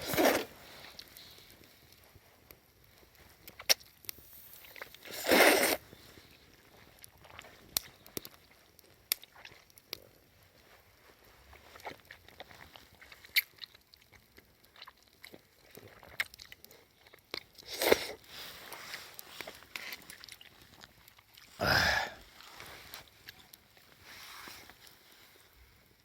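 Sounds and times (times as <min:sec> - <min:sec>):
person chewing crunchy food: 0:00.0 - 0:01.6, 0:11.6 - 0:22.4.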